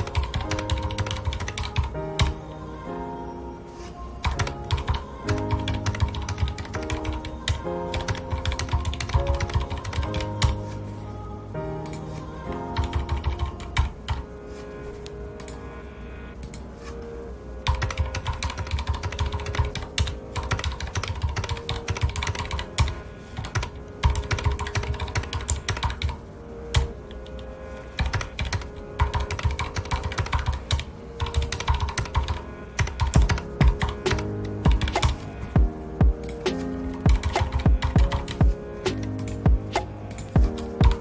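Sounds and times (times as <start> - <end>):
mechanical keyboard typing: 0.0 - 2.3, 4.2 - 10.6, 17.7 - 26.2, 28.0 - 35.2
soft background music: 0.0 - 41.0.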